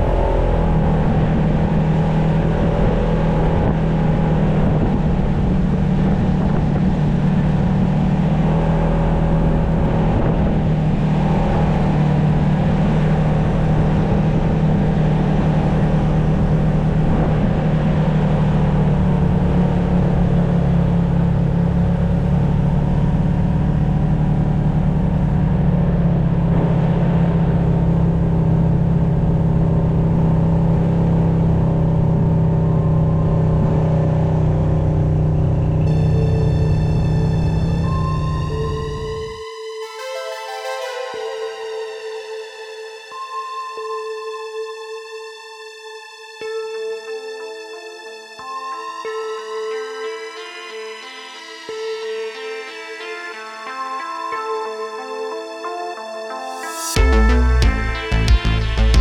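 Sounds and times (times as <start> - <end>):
off-road vehicle engine droning: 0.0 - 39.4.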